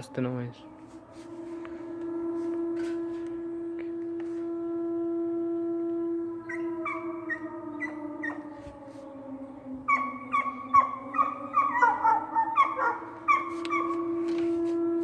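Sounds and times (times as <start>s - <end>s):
siren-like blaring tone: 0.0s - 15.0s
dog yipping and howling: 6.5s - 14.5s.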